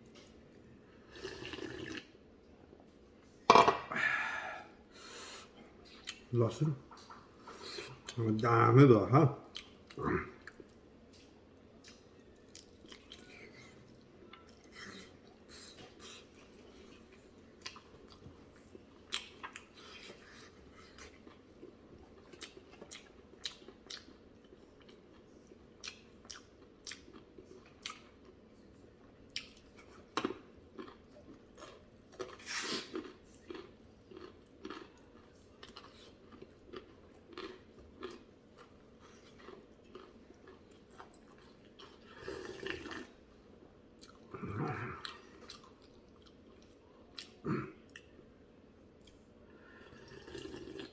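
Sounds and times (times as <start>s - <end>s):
person chewing food: 9.5s - 28.4s, 29.3s - 48.2s, 49.0s - 50.9s.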